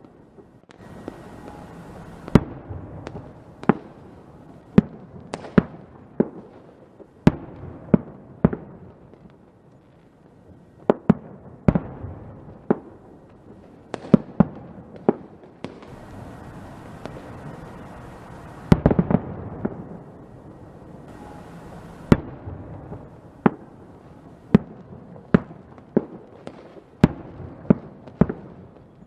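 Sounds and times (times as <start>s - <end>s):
fireworks bangs: 0.0s - 9.4s, 10.8s - 29.0s
steady hiss: 0.1s - 5.5s, 15.7s - 27.0s.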